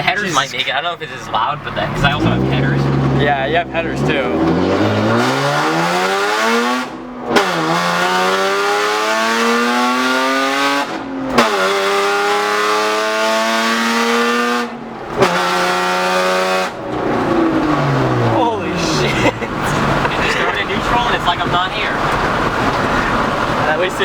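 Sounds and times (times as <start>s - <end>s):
car engine accelerating hard: 0.0s - 24.0s.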